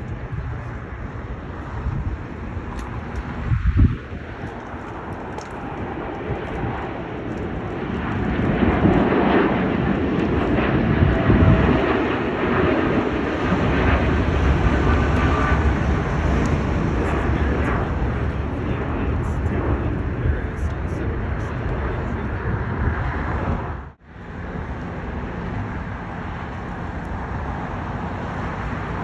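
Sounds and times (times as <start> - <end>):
jet airliner engines rumbling: 0.0 - 29.0.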